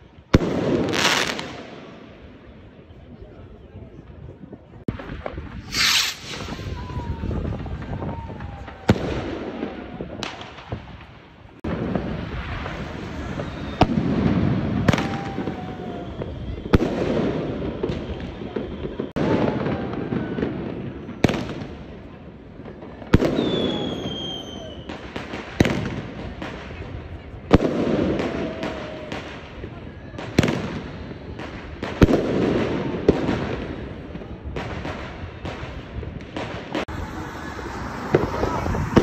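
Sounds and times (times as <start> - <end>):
crowd noise: 0.0 - 39.0
short high hiss: 5.7 - 6.7.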